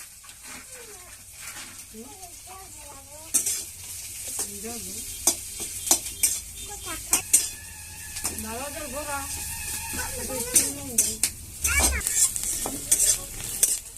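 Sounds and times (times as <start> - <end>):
food sizzling in hot oil: 0.0 - 13.9
metal spoon knocking on pan: 5.2 - 13.2.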